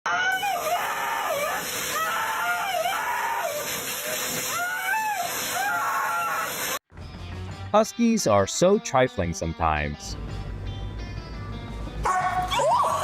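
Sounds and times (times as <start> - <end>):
steady hiss: 0.5 - 6.8.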